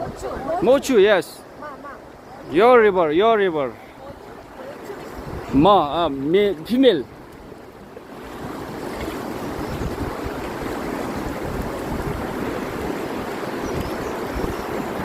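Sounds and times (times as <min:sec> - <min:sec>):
wind on microphone: 0:00.0 - 0:00.6, 0:04.9 - 0:06.0, 0:07.2 - 0:15.0
river water rushing: 0:00.0 - 0:15.0.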